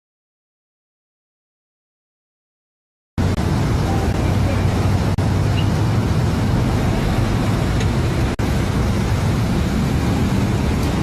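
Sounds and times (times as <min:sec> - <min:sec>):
car engine and road noise: 0:03.2 - 0:11.0.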